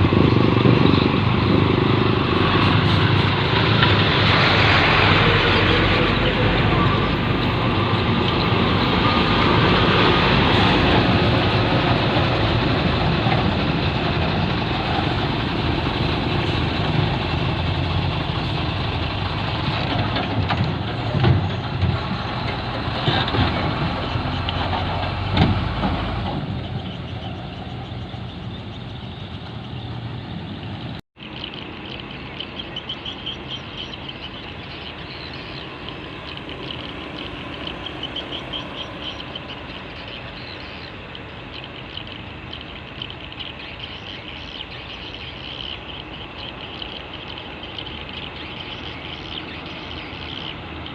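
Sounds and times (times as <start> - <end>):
truck engine rumbling: 0.0 - 50.9
rapid rhythmic chirping: 31.3 - 50.9.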